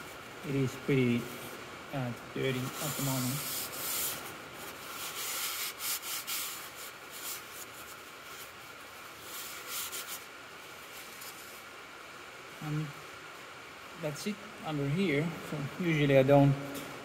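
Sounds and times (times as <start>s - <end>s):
rubbing strokes cleaning metal: 2.4s - 11.6s.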